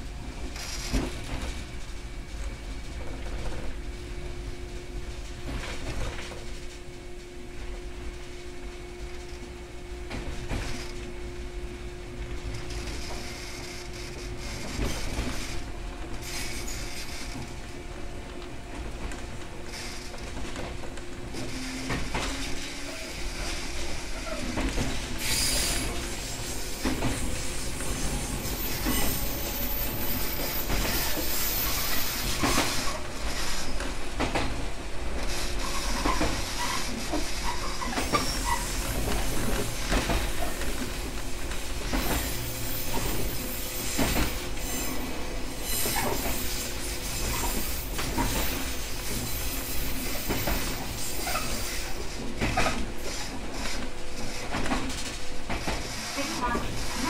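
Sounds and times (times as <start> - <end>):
wheels rumbling on rail: 0.0 - 57.0
high wheel squeal: 42.0 - 51.9.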